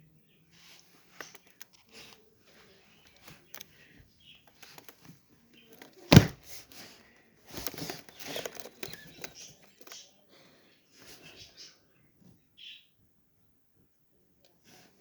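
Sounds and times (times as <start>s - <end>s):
sharp knock: 6.1s - 6.4s.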